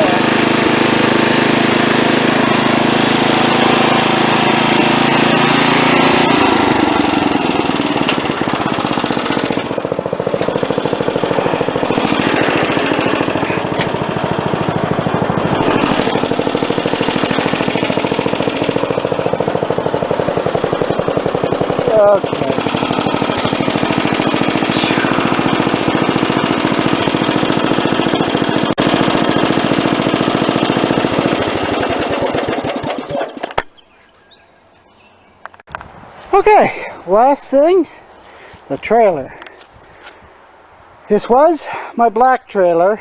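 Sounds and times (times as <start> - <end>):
small engine running: 0.0 - 34.3.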